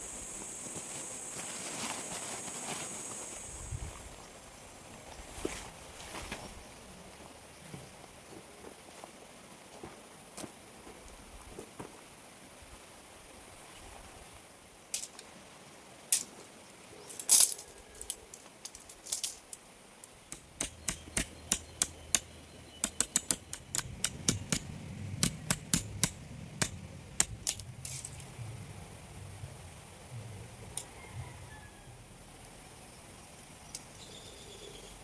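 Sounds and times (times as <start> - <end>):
small hard objects clinking: 17.1 - 19.6, 27.5 - 28.3.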